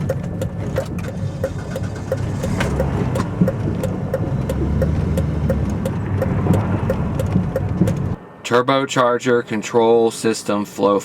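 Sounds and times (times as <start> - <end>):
hazard light flasher ticking: 0.0 - 8.2
car engine humming: 0.0 - 8.3.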